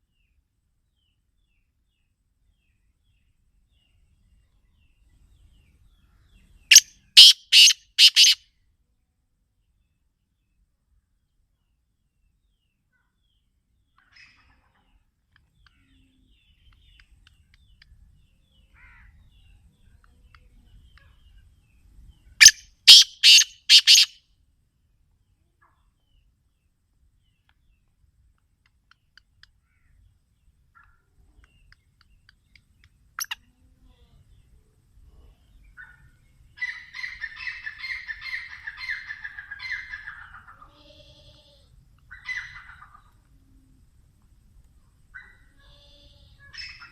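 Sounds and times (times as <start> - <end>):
faint bird chirps: 1.0 - 8.4, 11.7 - 24.2, 28.7 - 44.0, 44.8 - 46.9
francolin harsh calls: 6.7 - 8.4, 22.4 - 24.2, 33.2 - 33.5.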